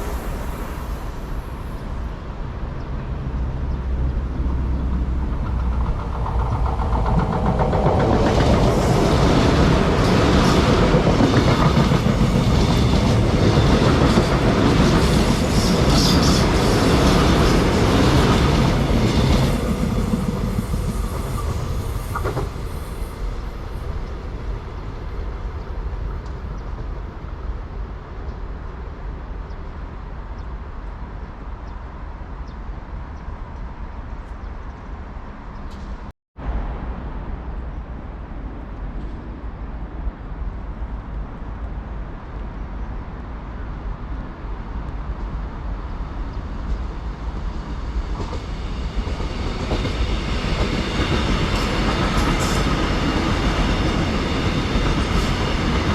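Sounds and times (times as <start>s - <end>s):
train wheels clacking on rails: 4.5s - 24.2s, 46.4s - 55.9s.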